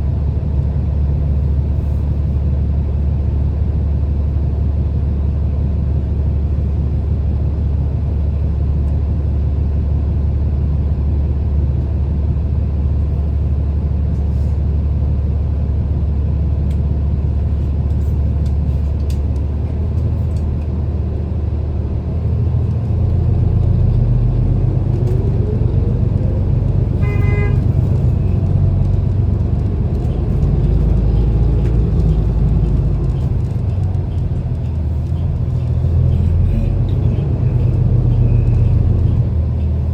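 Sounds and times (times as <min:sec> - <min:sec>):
bus engine rumble: 0:00.0 - 0:39.9
short horn toot: 0:27.0 - 0:27.7.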